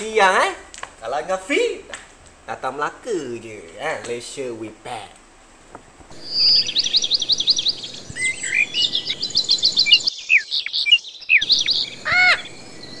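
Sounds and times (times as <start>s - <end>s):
birds trilling and whistling: 6.1s - 13.0s
harsh bird squawk: 6.1s - 13.0s.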